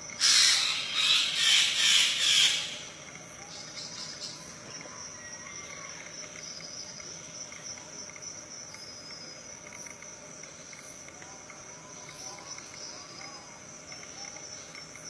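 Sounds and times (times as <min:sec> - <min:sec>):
high-pitched insect chorus: 0:00.0 - 0:15.0
faint bird calls: 0:00.2 - 0:06.6.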